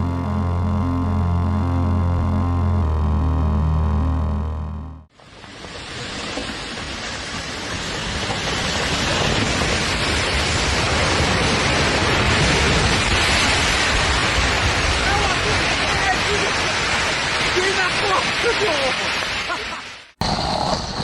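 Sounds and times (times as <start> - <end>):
background music: 0.0 - 5.1.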